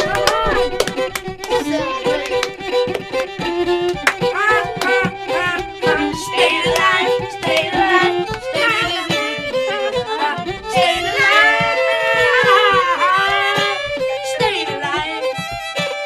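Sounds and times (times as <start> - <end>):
lively fiddle music: 0.0 - 16.0.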